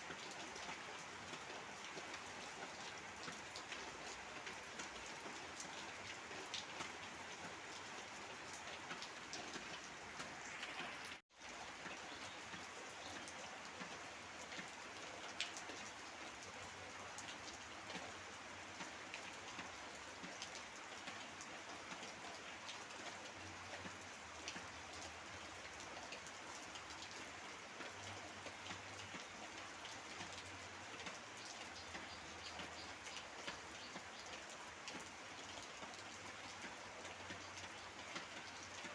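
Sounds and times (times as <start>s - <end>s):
heavy rain falling: 0.0s - 38.9s
water drips ticking: 8.5s - 15.9s, 17.2s - 38.9s.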